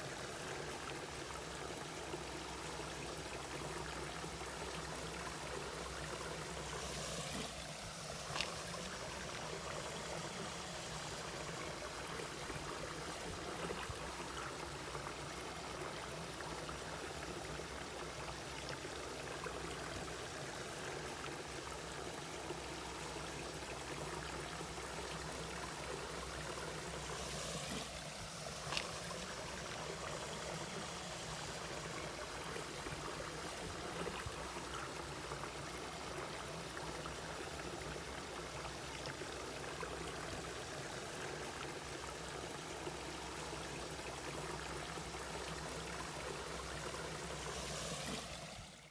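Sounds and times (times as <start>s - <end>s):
stream flowing over rocks: 0.0s - 48.9s.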